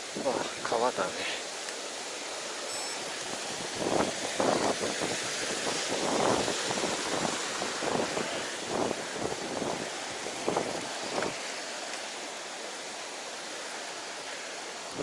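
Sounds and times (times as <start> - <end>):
bike wheels hissing through water: 0.0 - 15.0
wind on microphone: 3.2 - 11.4.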